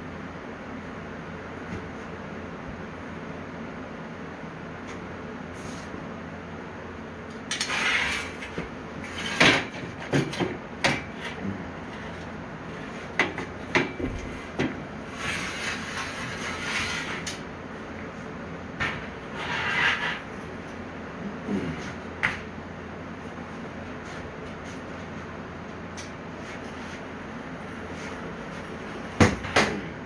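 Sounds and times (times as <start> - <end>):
metal scraping: 7.6 - 8.4, 15.1 - 17.4, 19.3 - 20.3.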